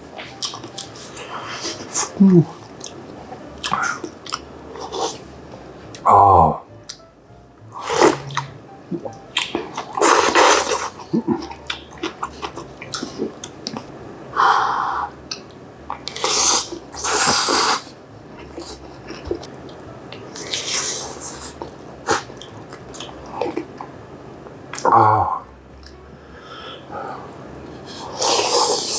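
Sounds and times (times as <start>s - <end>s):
chewing and wet mouth sounds: 3.6s - 5.2s
sharp breaths and slurping: 26.3s - 28.9s.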